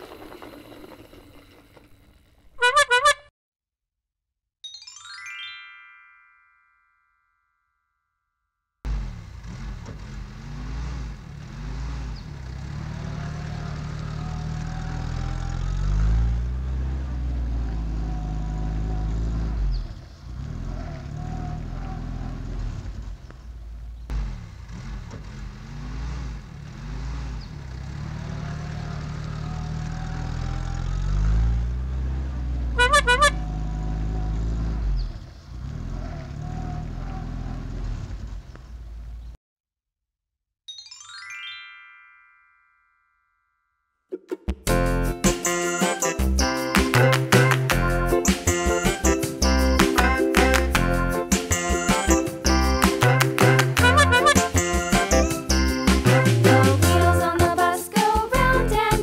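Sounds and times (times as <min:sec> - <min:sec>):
warbling horn toot: 0:02.6 - 0:03.3, 0:32.7 - 0:34.1, 0:53.7 - 0:54.8
heavy truck engine revving: 0:08.9 - 0:39.4, 0:45.0 - 0:57.4.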